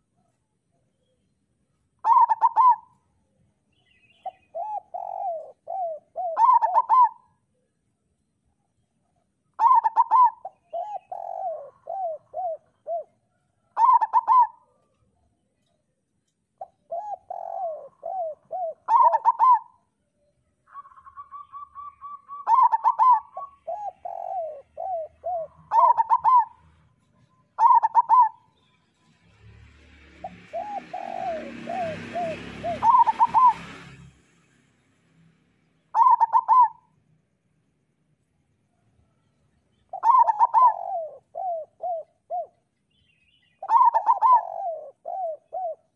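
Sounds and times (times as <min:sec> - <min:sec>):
doves cooing: 0:02.0 - 0:03.0, 0:04.2 - 0:07.3, 0:09.6 - 0:14.9, 0:16.6 - 0:19.8, 0:20.7 - 0:28.5, 0:30.2 - 0:33.8, 0:35.9 - 0:36.9, 0:39.9 - 0:42.7, 0:43.6 - 0:45.9.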